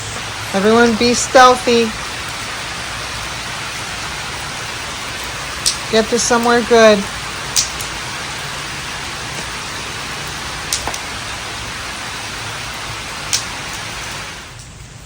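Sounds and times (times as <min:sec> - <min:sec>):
steady rain falling: 0:00.0 - 0:15.0
sharp ticks: 0:05.2 - 0:06.6, 0:07.5 - 0:08.0, 0:10.3 - 0:11.1, 0:13.3 - 0:13.6.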